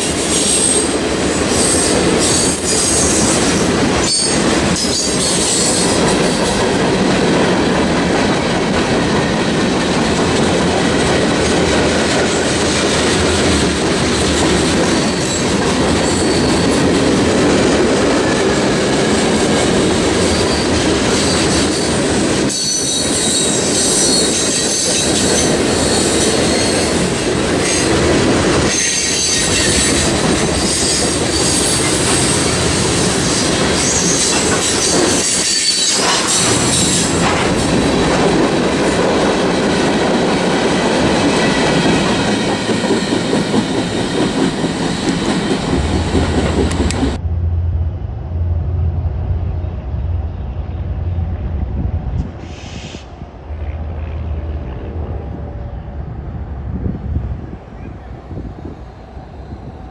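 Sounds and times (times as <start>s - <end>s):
steel wheels running on rails: 0.0s - 47.2s.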